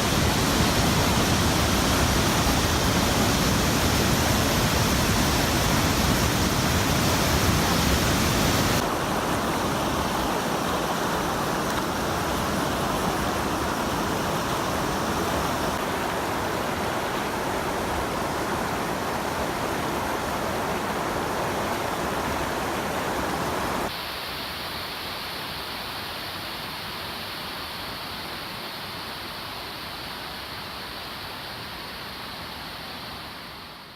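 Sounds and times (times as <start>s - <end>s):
waterfall rushing: 0.0s - 25.7s.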